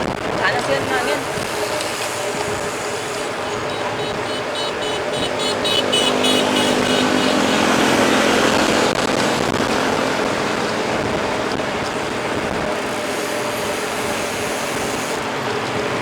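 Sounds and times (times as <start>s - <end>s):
bike rolling noise: 0.0s - 16.0s
wind rushing on microphone: 0.0s - 16.0s
high chirps: 2.6s - 7.8s.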